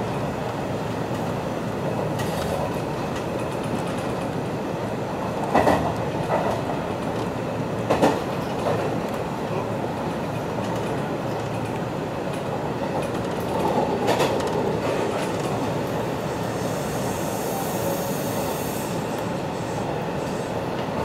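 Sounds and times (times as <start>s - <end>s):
train wheels rumbling on rail: 0.0s - 21.0s
high hiss: 16.3s - 20.6s.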